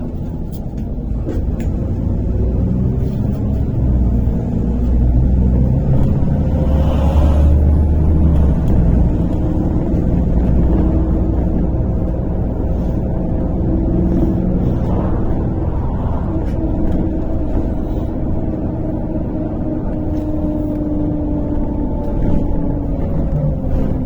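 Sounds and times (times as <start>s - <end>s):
bus engine drone: 0.0s - 24.0s
road and cabin noise: 0.0s - 24.0s
faint rising whine: 12.0s - 18.8s.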